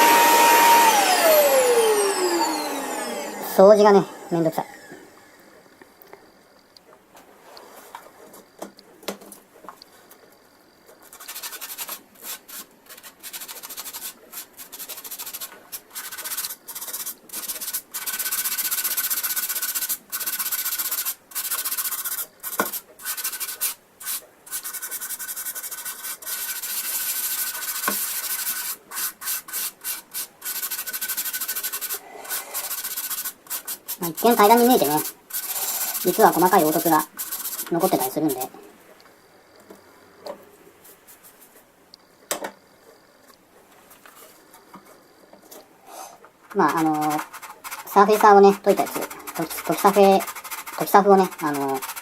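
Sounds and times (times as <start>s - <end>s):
sandpaper rubbing on plastic: 11.0s - 38.5s, 46.4s - 52.0s.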